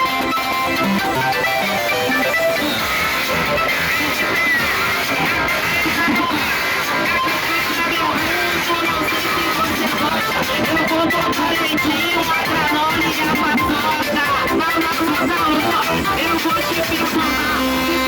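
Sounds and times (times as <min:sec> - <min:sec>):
person singing: 0:05.6 - 0:18.0.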